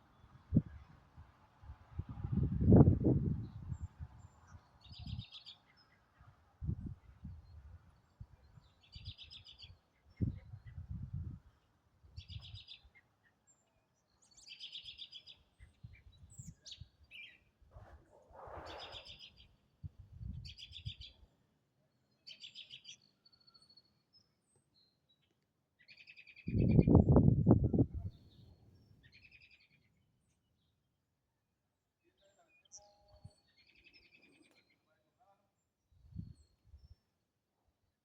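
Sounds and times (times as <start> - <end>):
songbird buzzy song: 2.1 - 17.6, 18.6 - 30.8, 32.1 - 34.8.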